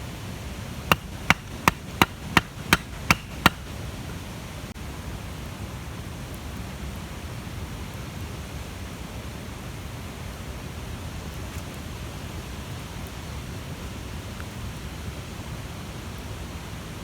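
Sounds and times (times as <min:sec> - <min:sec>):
faint fire crackles: 0:03.6 - 0:16.4.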